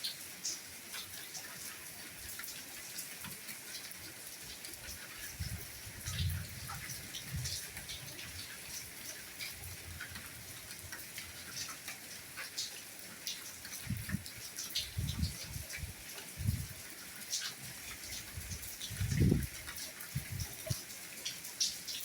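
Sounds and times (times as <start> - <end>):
steady rainfall: 0.0 - 22.0.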